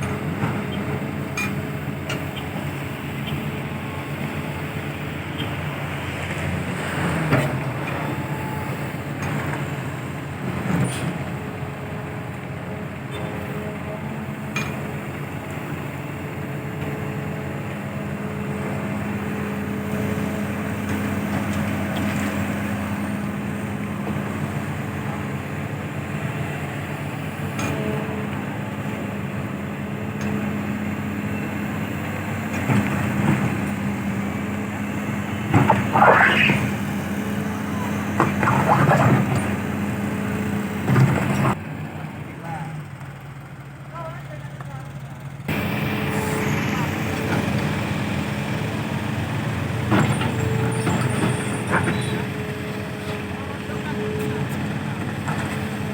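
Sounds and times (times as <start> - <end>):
diesel engine humming: 0.0 - 55.9
brief sounds rising and falling: 35.6 - 36.8.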